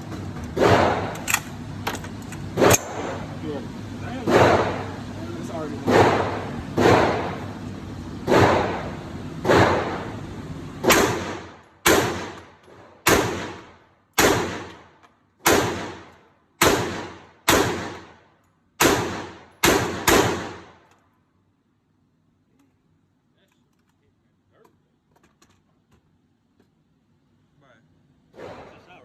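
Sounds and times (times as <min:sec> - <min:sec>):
echoing gunshots: 0:00.6 - 0:01.6, 0:02.6 - 0:03.3, 0:04.1 - 0:07.6, 0:08.2 - 0:10.2, 0:10.8 - 0:18.2, 0:18.8 - 0:20.8.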